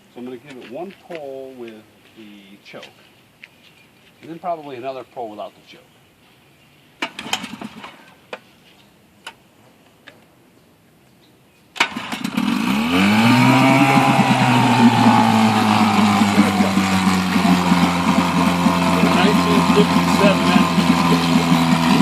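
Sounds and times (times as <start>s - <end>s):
outboard motor starting and running: 7.0s - 8.0s, 11.8s - 22.0s.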